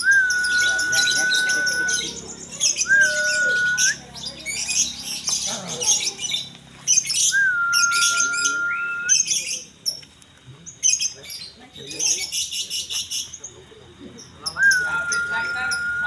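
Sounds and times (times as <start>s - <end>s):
lovebirds chirping: 0.0s - 16.0s
long whistled note: 2.8s - 4.0s.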